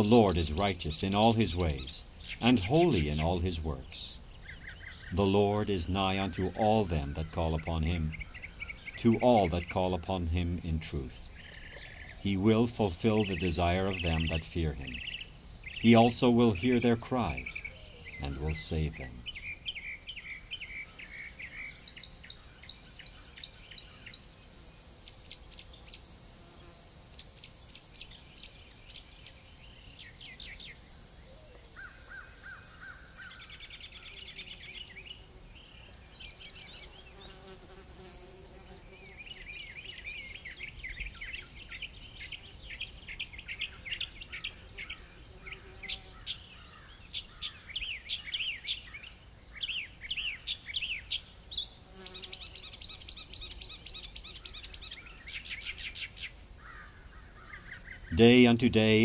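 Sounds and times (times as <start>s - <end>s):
birds chirping: 0.0s - 26.2s, 27.1s - 59.0s
insect high trill: 0.0s - 35.4s.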